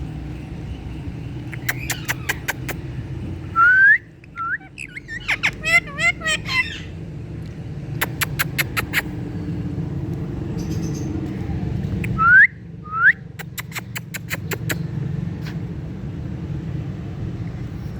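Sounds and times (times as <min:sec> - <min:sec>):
parrot clicking: 0:01.5 - 0:02.8.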